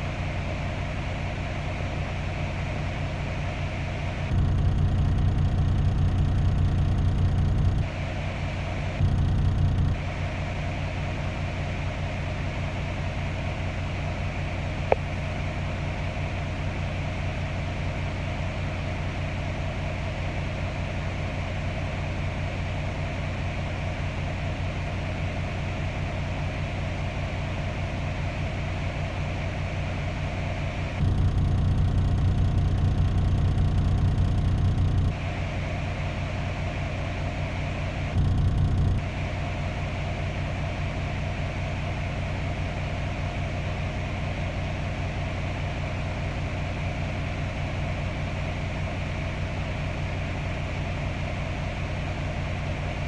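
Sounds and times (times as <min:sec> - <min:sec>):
vehicle engine idling: 0:00.0 - 0:53.0
click: 0:14.9 - 0:15.1.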